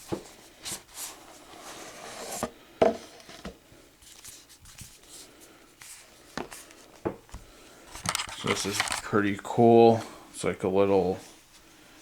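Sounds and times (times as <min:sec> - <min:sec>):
cardboard packaging rubbing and sliding: 0:00.0 - 0:02.6.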